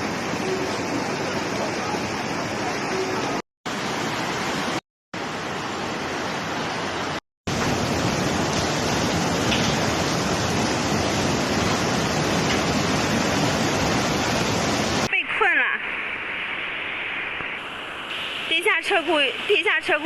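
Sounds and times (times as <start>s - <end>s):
rushing flood water: 0.0s - 15.6s.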